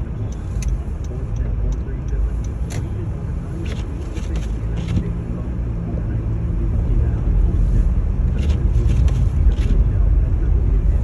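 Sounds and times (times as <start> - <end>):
engine and road noise rumble: 0.0 - 11.0
light ticks: 0.2 - 2.9.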